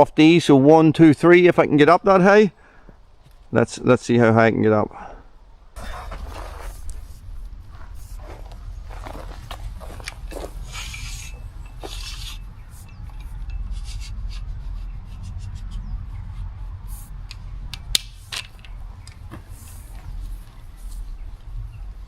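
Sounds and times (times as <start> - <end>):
saw rasping through branch: 10.6 - 15.9.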